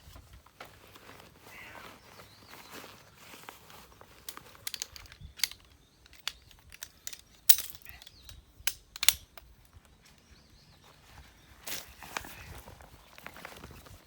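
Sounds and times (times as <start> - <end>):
sharp clicks and light knocks: 4.2 - 10.2.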